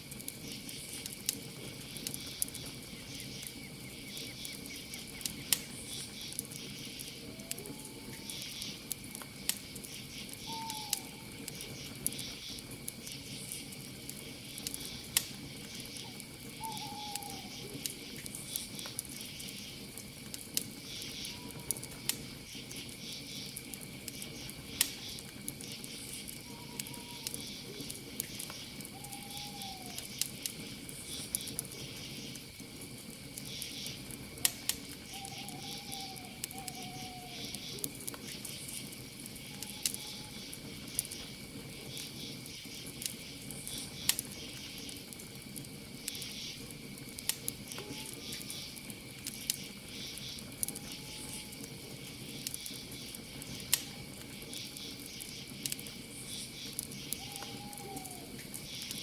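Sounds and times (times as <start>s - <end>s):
campfire crackling and popping: 0.0s - 59.0s
crickets trilling: 0.0s - 59.0s
owl calling: 10.4s - 11.3s, 16.0s - 17.7s, 26.4s - 27.5s, 28.9s - 30.1s, 35.1s - 37.7s, 39.6s - 40.4s, 50.7s - 51.6s, 57.1s - 58.4s.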